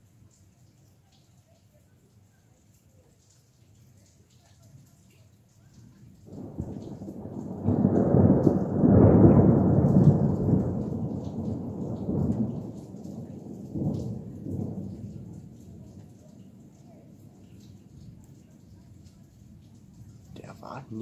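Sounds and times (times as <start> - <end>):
thunder rumbling: 6.2 - 21.0.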